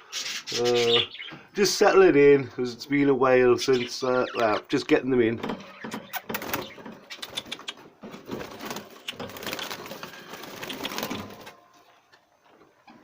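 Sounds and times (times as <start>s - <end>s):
budgerigars chattering: 3.6s - 4.8s.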